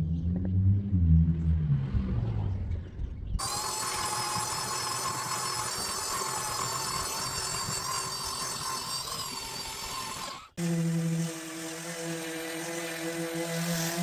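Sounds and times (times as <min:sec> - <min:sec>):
power tool whining: 0:03.4 - 0:14.0.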